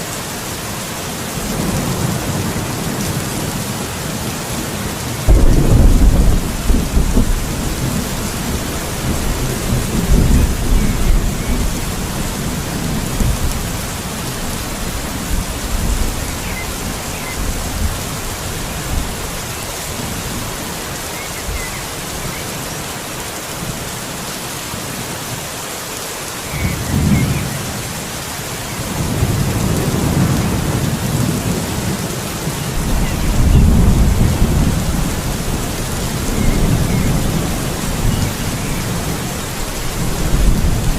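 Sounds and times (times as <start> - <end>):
steady rain: 0.0 - 40.9
thunder rumbling: 5.2 - 19.4, 28.8 - 40.9.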